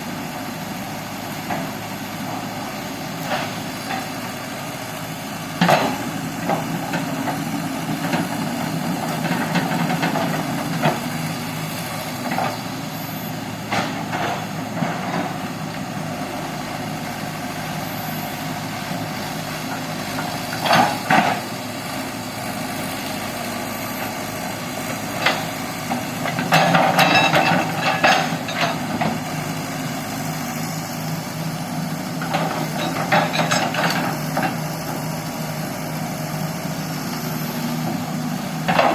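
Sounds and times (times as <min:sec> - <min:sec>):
excavator diesel engine running: 0:00.0 - 0:38.9
sharp metal clanks and knocks: 0:26.3 - 0:28.8.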